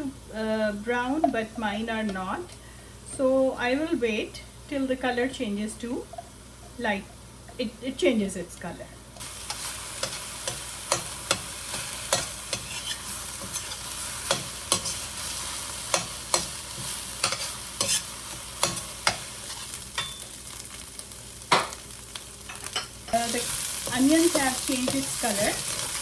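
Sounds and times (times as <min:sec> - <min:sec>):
utensil scraping a wok: 0:09.2 - 0:20.3, 0:22.5 - 0:26.0
onions sizzling in hot oil: 0:09.2 - 0:26.0.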